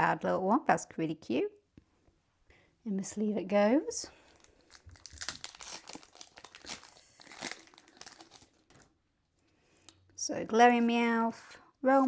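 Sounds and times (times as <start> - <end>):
foil wrapper crinkling and tearing: 4.2 - 9.0.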